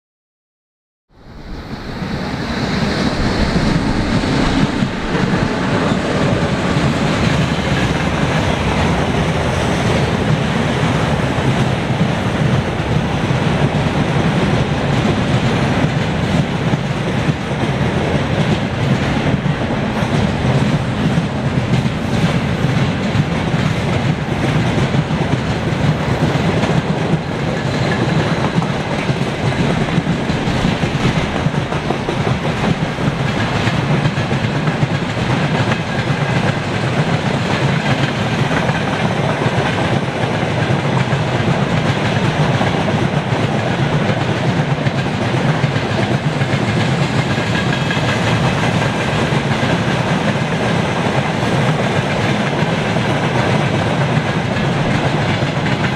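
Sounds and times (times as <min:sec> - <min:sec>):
freight train wheels rumbling: 0:01.1 - 0:55.9
clatter over rail joints: 0:13.6 - 0:55.9.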